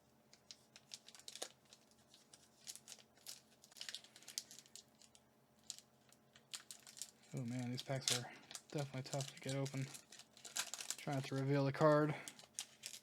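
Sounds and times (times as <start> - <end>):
foil wrapper crinkling and tearing: 0.3 - 13.0.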